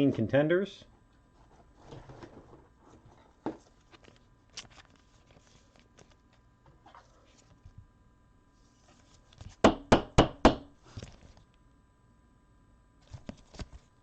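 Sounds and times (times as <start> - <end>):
trading cards rustling: 3.6 - 7.7.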